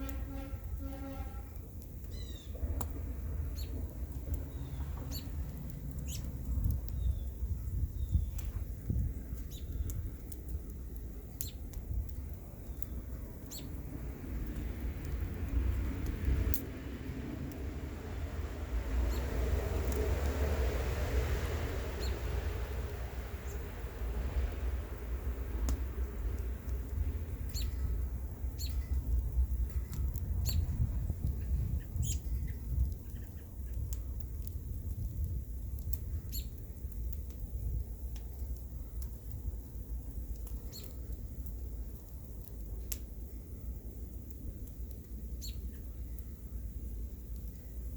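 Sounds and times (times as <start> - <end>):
wind rumble on microphone: 0.0 - 47.9
wood fire crackling and popping: 0.0 - 47.9.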